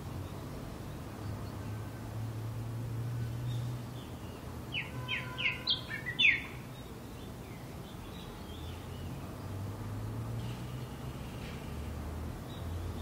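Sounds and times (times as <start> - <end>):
distant traffic hum: 0.0 - 13.0.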